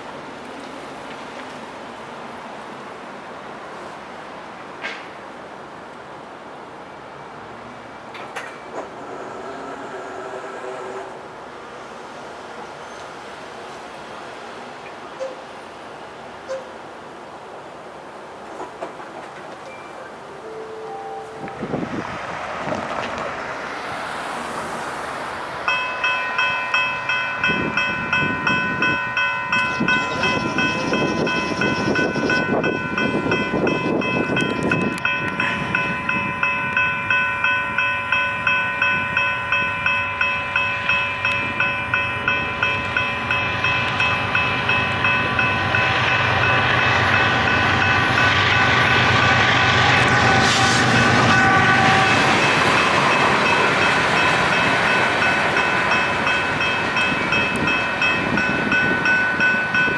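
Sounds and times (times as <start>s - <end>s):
train rumble: 7.4s - 14.4s, 18.4s - 59.9s
crossing bell ringing: 19.7s - 22.0s, 25.6s - 59.9s.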